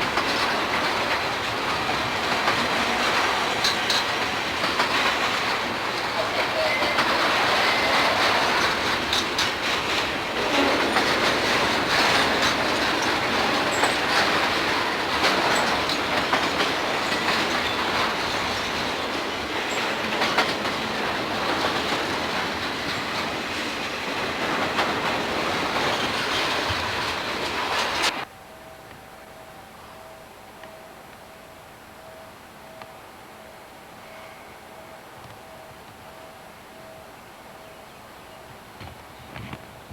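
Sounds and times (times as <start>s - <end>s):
wheels clicking over rail joints: 0.0s - 29.0s
freight train rumbling past: 0.0s - 39.9s.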